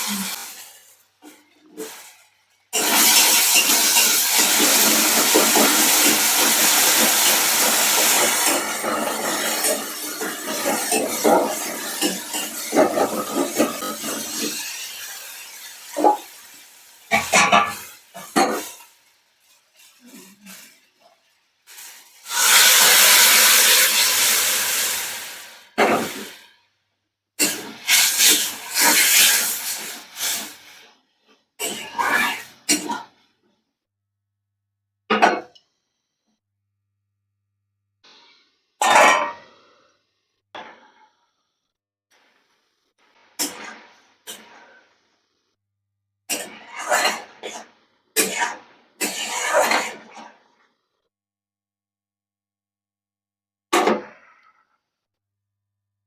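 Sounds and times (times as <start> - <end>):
bursts of hissing noise: 0.0 - 0.9, 2.8 - 18.4, 21.7 - 26.4, 27.4 - 30.8
hot oil sizzling in a pan: 0.0 - 1.1, 2.8 - 20.8, 21.6 - 26.5, 27.4 - 30.8.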